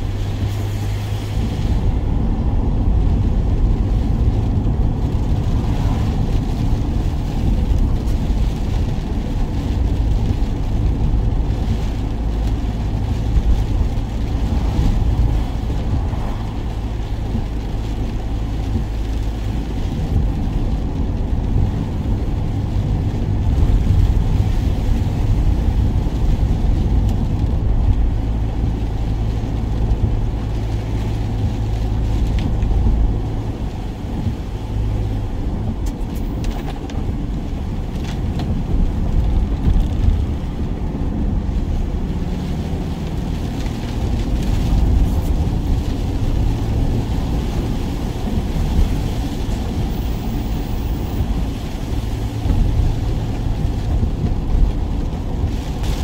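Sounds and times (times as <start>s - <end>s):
road rumble: 0.0s - 56.0s
van engine hum: 0.0s - 56.0s.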